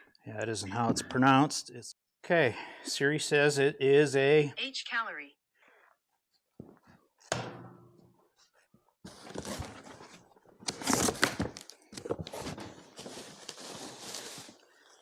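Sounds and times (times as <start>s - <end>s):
packing material rustling and scraping: 9.1s - 15.0s.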